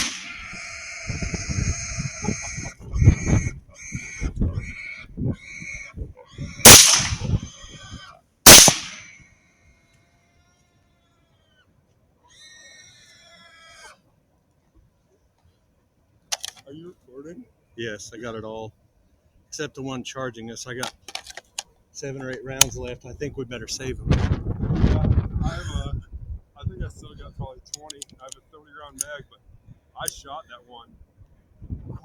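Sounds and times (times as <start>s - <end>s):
rifle shots: 0.0s - 0.5s, 6.6s - 7.4s, 8.5s - 9.1s
hog squealing: 0.0s - 8.2s.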